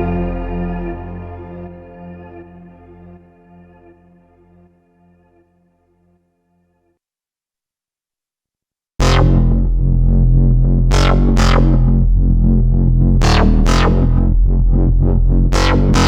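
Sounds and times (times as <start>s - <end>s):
deep synthesizer bass line: 0.0s - 4.6s, 9.0s - 16.0s.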